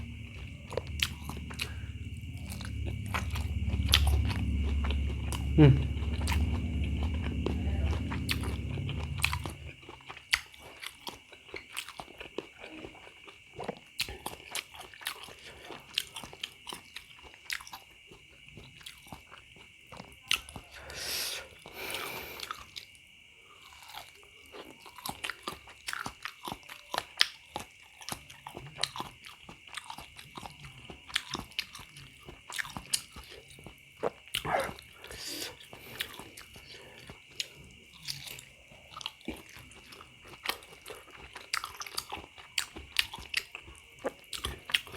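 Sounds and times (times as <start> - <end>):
breathy sound: 0.0 - 9.9, 21.3 - 22.5
wet chewing and crunching: 0.0 - 44.9.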